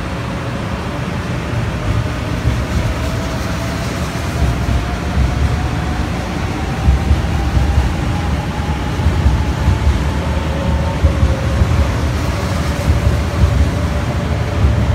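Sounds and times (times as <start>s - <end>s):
train rumbling on rails: 0.0s - 14.9s.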